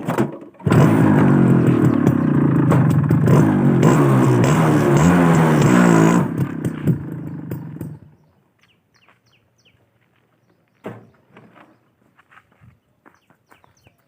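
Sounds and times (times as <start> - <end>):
two-stroke engine running: 0.6 - 8.2
birds chirping faintly: 7.2 - 14.0.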